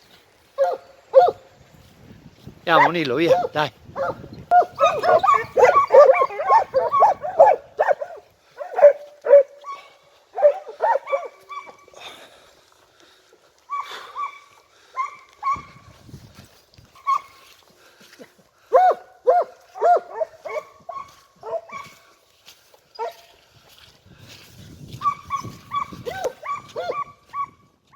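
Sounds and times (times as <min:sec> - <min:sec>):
hounds baying: 0:00.5 - 0:01.5, 0:02.7 - 0:12.2, 0:13.7 - 0:15.9, 0:16.9 - 0:17.5, 0:18.6 - 0:22.2, 0:22.9 - 0:23.3, 0:25.0 - 0:27.6.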